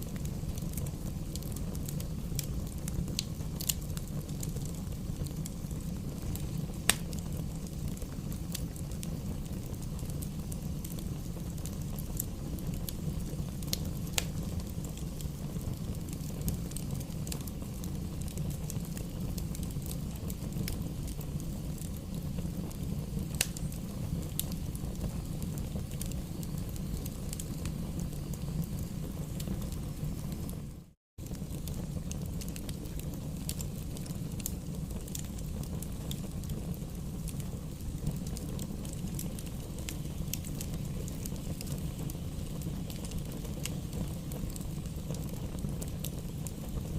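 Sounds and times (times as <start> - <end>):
flames rushing: 0.0 - 46.9
wood crackling pops: 6.9 - 7.8.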